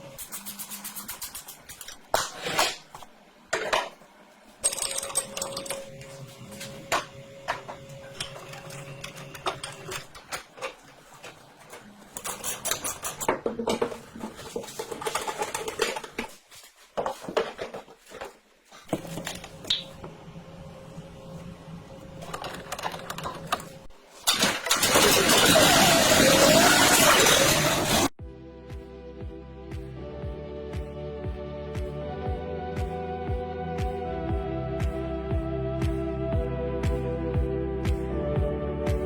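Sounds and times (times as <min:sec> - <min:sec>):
metal parts clicking and clattering: 0:04.6 - 0:06.0.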